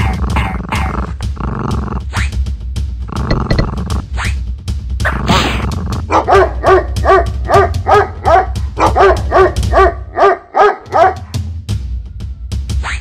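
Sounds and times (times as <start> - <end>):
dog barking rapidly: 6.1 - 11.2.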